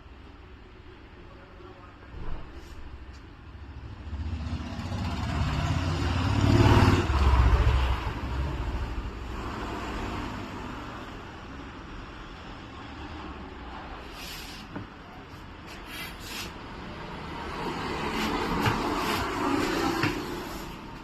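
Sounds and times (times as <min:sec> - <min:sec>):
vehicle passing by: 0:03.7 - 0:11.3, 0:16.0 - 0:21.0.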